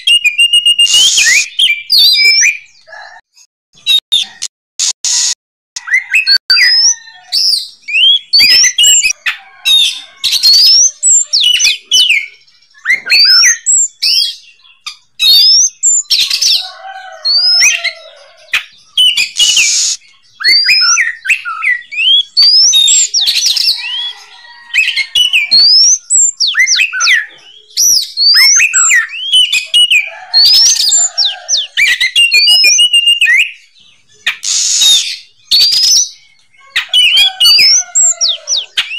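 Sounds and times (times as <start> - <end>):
bird whistled song: 0.0 - 2.8, 5.8 - 38.9
harsh raspy bird calls: 5.2 - 38.9.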